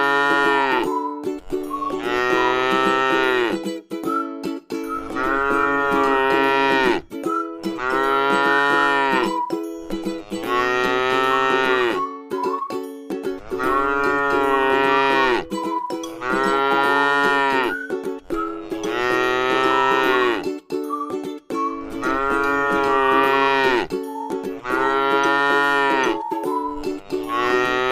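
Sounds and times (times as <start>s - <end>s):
cow mooing: 0.0s - 0.8s, 2.0s - 3.6s, 5.1s - 7.0s, 7.8s - 9.3s, 10.2s - 12.0s, 13.5s - 15.4s, 16.2s - 17.8s, 18.7s - 20.4s, 22.0s - 23.9s, 24.6s - 26.2s, 27.0s - 27.9s.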